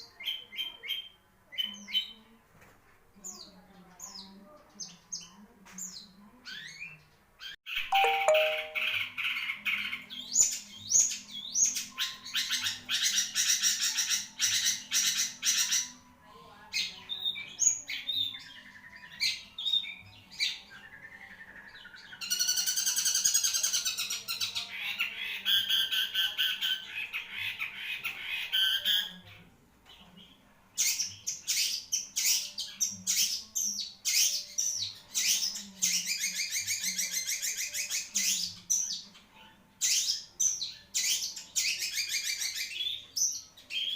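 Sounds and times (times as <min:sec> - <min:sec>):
shrike singing harsh notes: 0:08.0 - 0:09.0.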